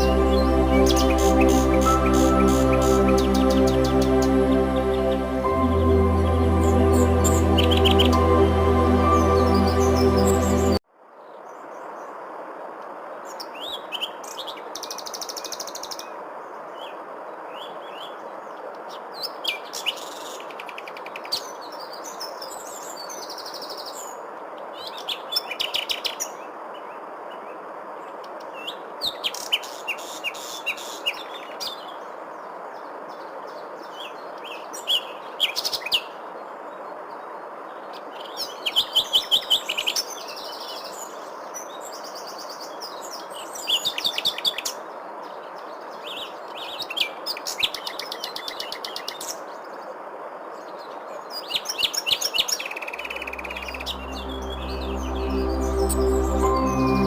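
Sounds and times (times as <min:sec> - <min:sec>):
birds chirping and singing: 0:00.0 - 0:05.6, 0:06.6 - 0:10.8
background hiss: 0:00.0 - 0:10.8.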